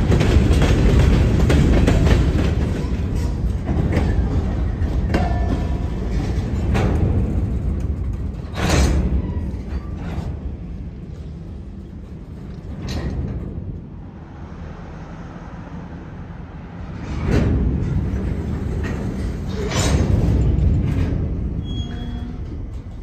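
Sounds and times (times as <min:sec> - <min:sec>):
freight train wheels rumbling: 0:00.0 - 0:23.0
train cars creaking: 0:00.0 - 0:23.0.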